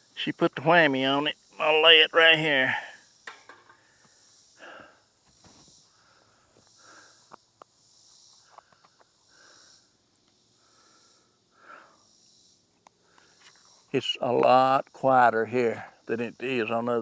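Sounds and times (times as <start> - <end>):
insect chorus buzzing: 0.0 - 17.0.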